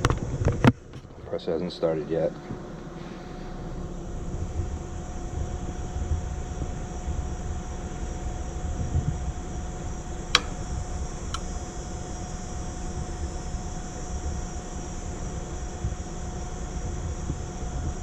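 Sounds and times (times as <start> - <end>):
air conditioner fan running: 0.0 - 18.0
sharp clicks: 10.4 - 11.6.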